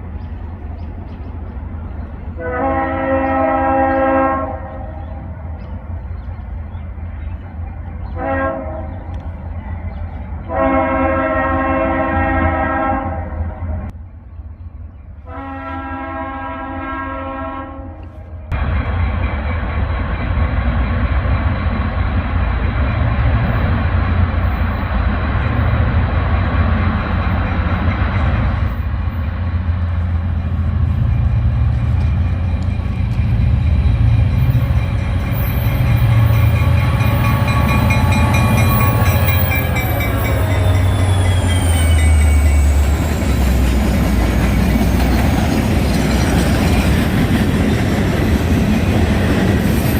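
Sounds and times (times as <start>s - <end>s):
train passing with rumble: 0.0s - 49.9s
train horn chord: 2.4s - 5.2s, 8.1s - 9.1s, 10.4s - 13.6s, 15.2s - 18.2s, 35.8s - 42.0s
wheels squealing on rails: 19.1s - 49.9s.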